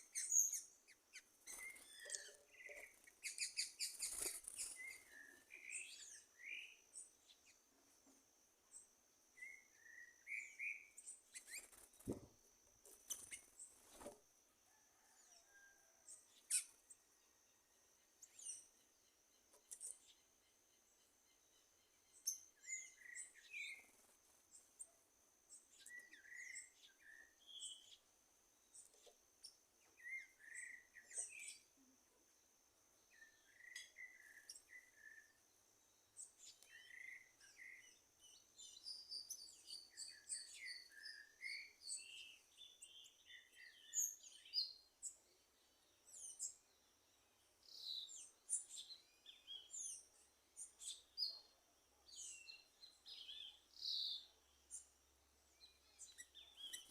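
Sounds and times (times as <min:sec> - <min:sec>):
wild birds chirping and whistling: 0:00.0 - 0:07.9, 0:08.7 - 0:17.0, 0:18.2 - 0:24.9, 0:25.5 - 0:28.1, 0:28.7 - 0:31.7, 0:33.0 - 0:56.9.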